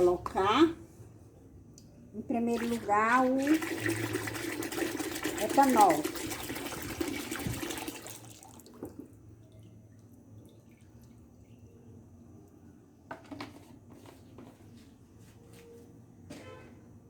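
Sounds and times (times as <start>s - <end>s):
liquid pouring into a bucket: 2.6s - 11.7s.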